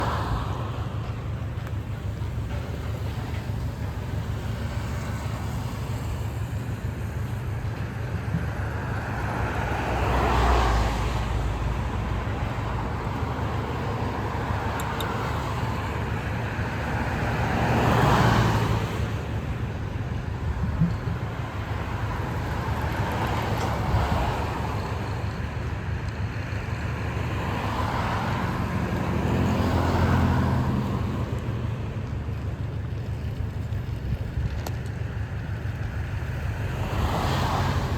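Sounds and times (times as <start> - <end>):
low engine rumble: 0.0 - 37.9
vehicles passing by: 0.0 - 37.9.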